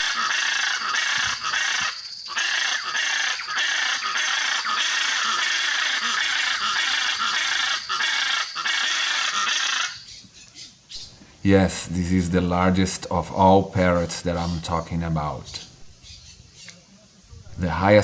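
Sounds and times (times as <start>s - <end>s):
macaws squawking: 0.0s - 11.3s, 13.8s - 16.8s.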